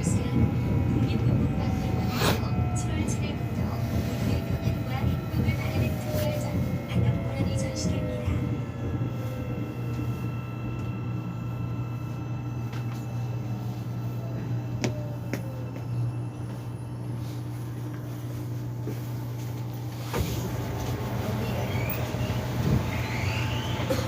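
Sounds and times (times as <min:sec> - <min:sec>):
subway train humming: 0:00.0 - 0:24.0
faint falling whine: 0:05.4 - 0:19.2.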